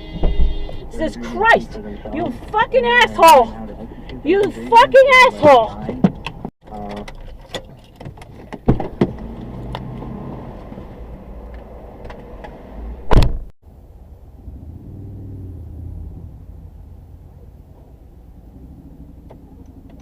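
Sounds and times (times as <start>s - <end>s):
car interior low rumble: 0.0s - 20.0s
thump: 13.1s - 13.5s.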